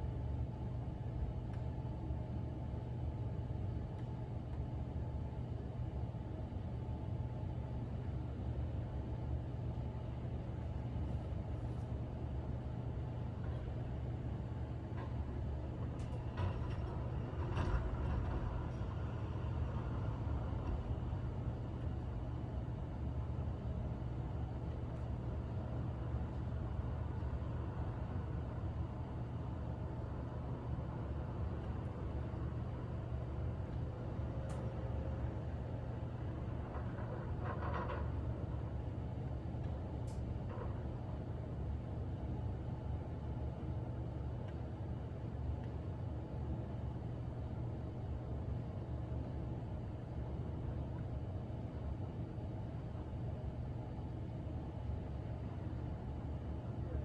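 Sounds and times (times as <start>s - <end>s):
steady low rumble: 9.8s - 45.1s.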